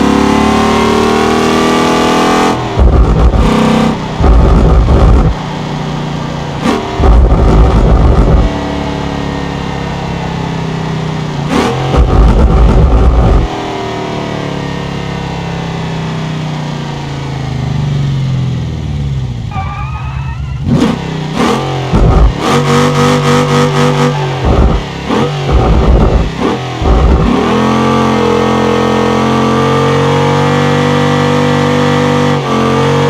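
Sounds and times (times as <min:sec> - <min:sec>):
engine revving: 0:00.0 - 0:05.4, 0:06.4 - 0:10.1, 0:11.4 - 0:14.2, 0:20.6 - 0:33.0.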